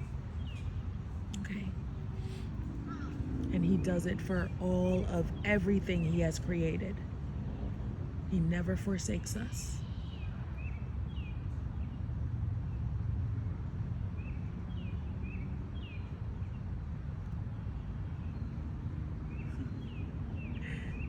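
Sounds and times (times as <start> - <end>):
birds chirping: 0.0 - 7.8, 17.4 - 21.0
steady low rumble: 0.0 - 21.0.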